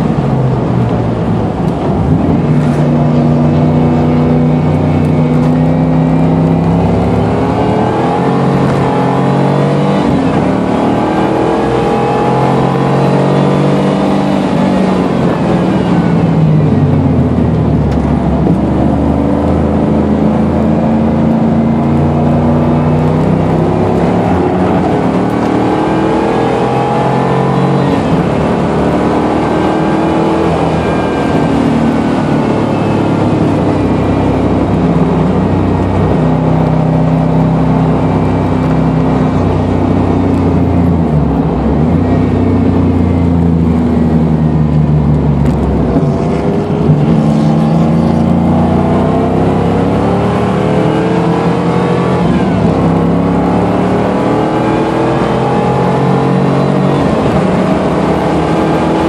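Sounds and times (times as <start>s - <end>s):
car engine accelerating: 0.0s - 59.0s
road and wind noise: 0.0s - 59.0s.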